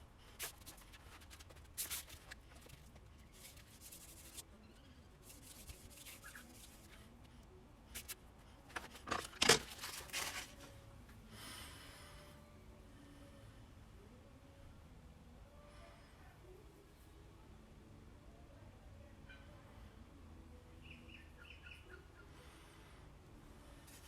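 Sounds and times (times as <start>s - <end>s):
metal scraping on sandpaper: 0.4s - 4.4s, 5.2s - 7.0s.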